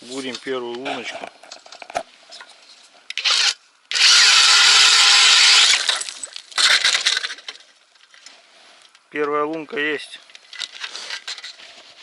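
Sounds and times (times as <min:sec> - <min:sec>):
ice auger grinding: 0:03.2 - 0:06.1.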